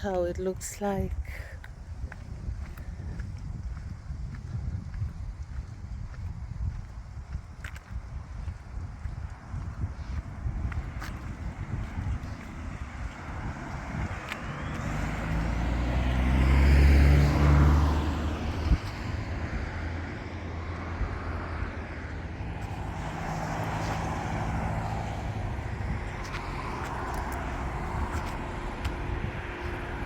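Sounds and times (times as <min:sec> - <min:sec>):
vehicles driving past: 0:08.8 - 0:30.0.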